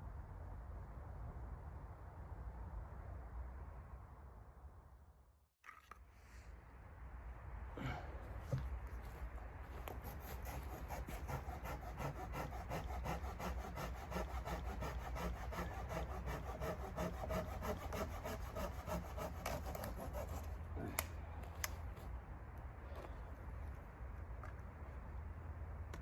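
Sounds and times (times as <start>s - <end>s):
hand saw cutting wood: 9.9s - 21.1s.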